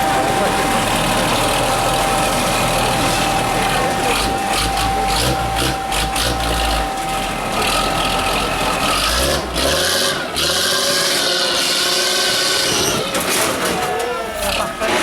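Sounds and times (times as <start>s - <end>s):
steady whine: 0.0s - 9.5s
truck engine running under load: 0.0s - 15.0s.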